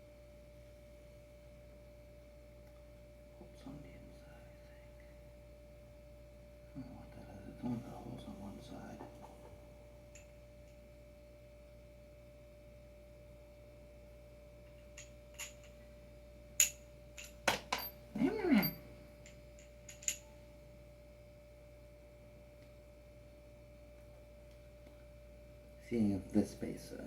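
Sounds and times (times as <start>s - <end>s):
faint electrical hum: 0.0s - 27.0s
small metal parts clicking: 14.7s - 15.8s, 16.6s - 17.9s, 18.6s - 20.3s.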